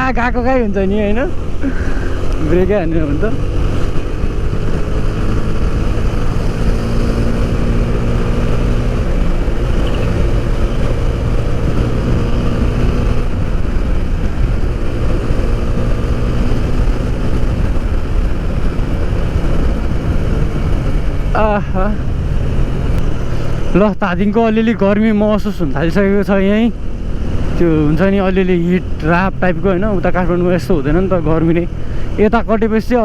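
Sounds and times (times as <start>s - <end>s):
wind rumble on microphone: 0.0s - 23.7s
motorcycle engine running: 0.0s - 33.0s.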